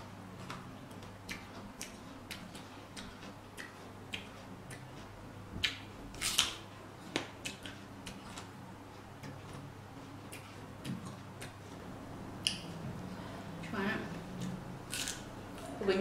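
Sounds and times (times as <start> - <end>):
crunching raw vegetables: 0.4 - 8.6, 14.4 - 15.8.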